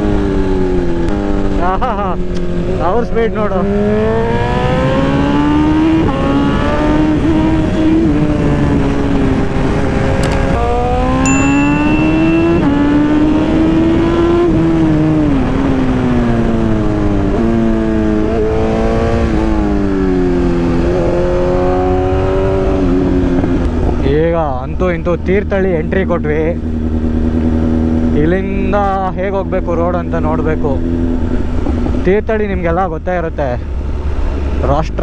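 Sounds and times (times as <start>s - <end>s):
motorcycle engine revving: 3.6s - 23.9s
short high beep: 11.3s - 13.3s.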